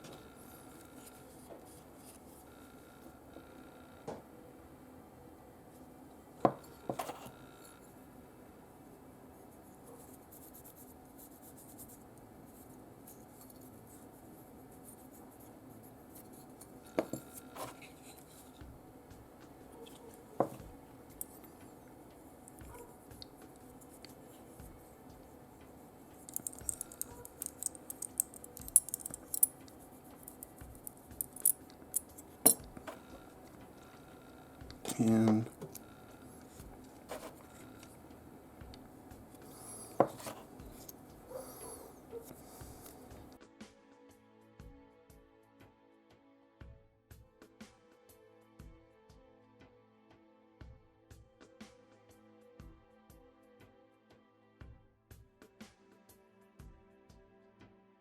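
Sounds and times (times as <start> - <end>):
metal parts clicking: 26.2 - 33.0
scratching and tapping on metal: 26.2 - 34.0.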